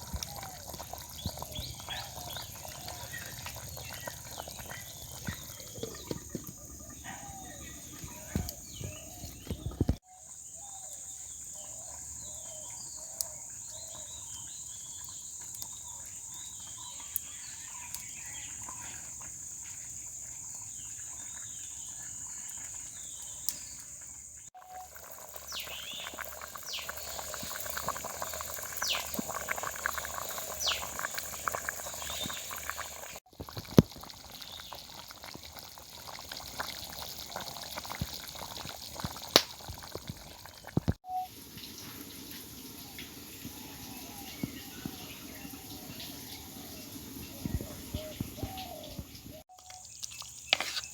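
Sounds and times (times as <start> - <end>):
crackling with sharp clicks: 39.3 - 40.1
bird chirps: 43.6 - 50.9.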